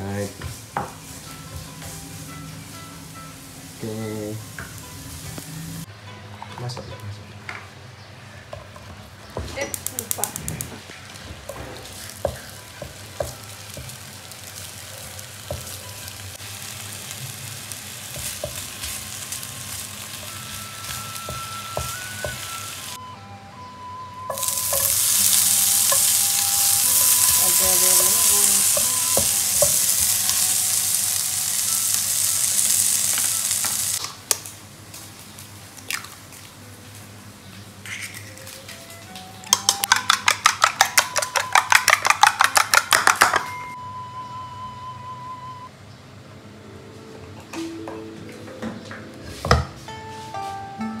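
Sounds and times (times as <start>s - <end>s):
food sizzling in oil: 0.0s - 5.9s, 9.7s - 23.0s, 24.3s - 34.0s
egg cracking on bowl: 39.5s - 43.5s.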